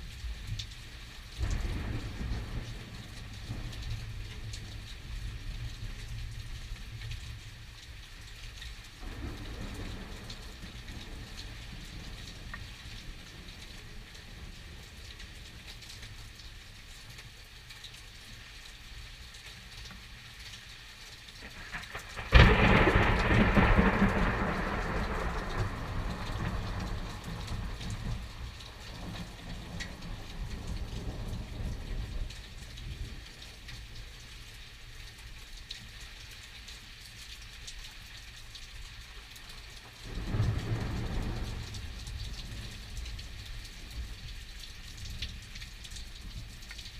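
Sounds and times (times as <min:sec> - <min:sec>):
steady rain falling: 0:00.0 - 0:46.9
thunder crack and rumble: 0:01.4 - 0:07.4, 0:09.0 - 0:15.3, 0:21.4 - 0:33.6, 0:40.0 - 0:44.4.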